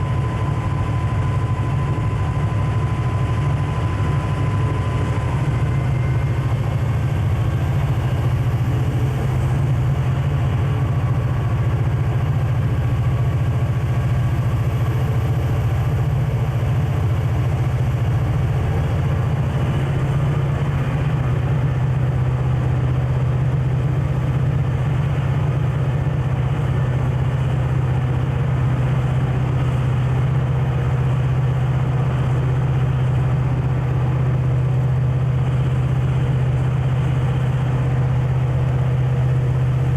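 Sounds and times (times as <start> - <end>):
diesel locomotive engine droning: 0.0 - 39.9.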